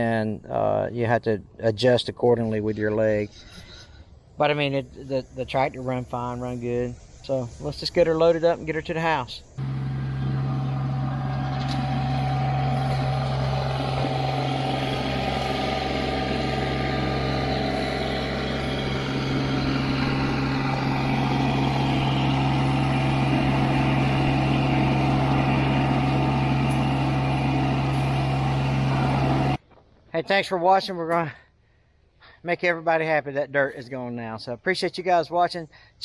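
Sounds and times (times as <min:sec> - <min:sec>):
vehicle engine running steadily: 0:09.5 - 0:29.6.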